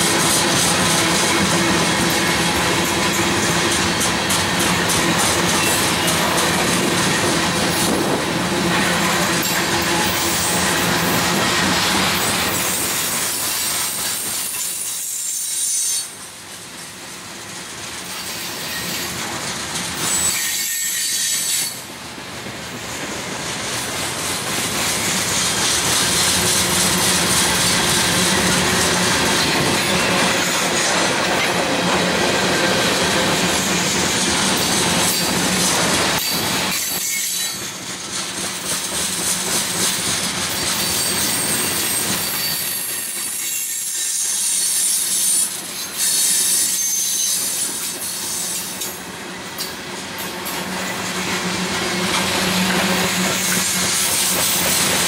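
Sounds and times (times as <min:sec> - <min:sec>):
freight train wheels clattering: 0:00.0 - 0:55.0
wheel squeal: 0:20.0 - 0:21.8, 0:36.2 - 0:37.7, 0:40.6 - 0:48.8.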